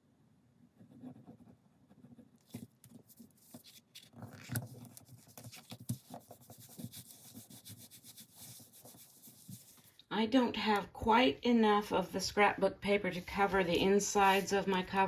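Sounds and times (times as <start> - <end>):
scratchy rubbing of paper: 0.8 - 10.0.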